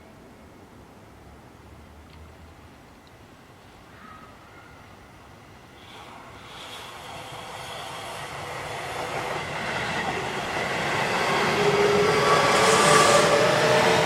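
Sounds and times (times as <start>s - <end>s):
train rail and wheel noise: 2.0s - 14.0s
electric train whine: 5.2s - 14.0s.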